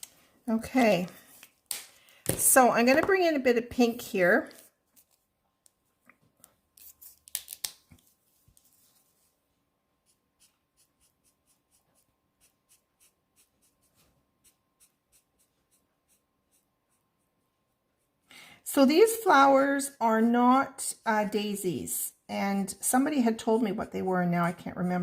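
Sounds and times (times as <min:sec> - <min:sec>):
marker scratching on card: 0:10.0 - 0:17.4.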